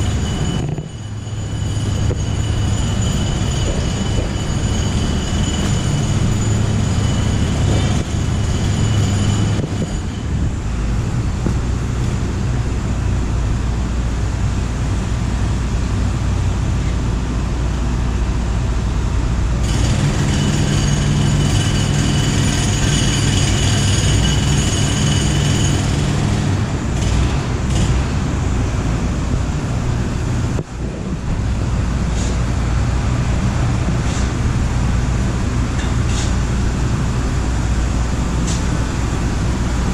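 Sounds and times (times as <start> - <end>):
train wheels squealing: 0.0 - 10.9, 19.6 - 27.9
subway train rumbling: 0.0 - 39.9.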